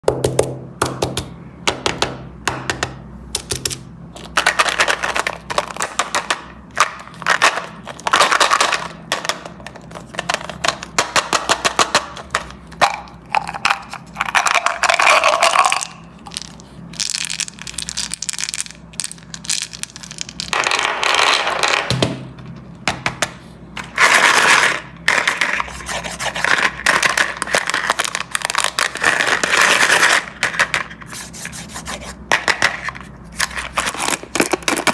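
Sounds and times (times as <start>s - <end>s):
candies pouring and clattering: 13.3s - 21.7s, 24.0s - 30.7s.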